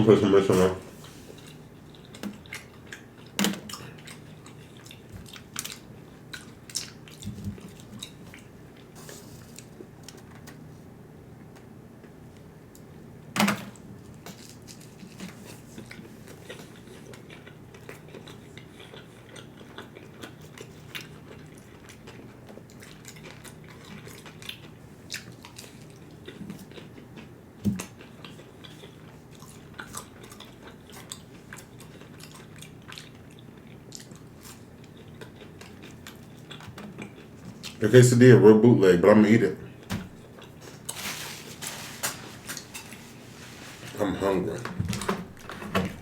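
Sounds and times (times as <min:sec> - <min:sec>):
person chewing food: 0:00.9 - 0:10.2, 0:14.0 - 0:37.8, 0:39.7 - 0:41.0
food packaging rustling: 0:40.1 - 0:46.0.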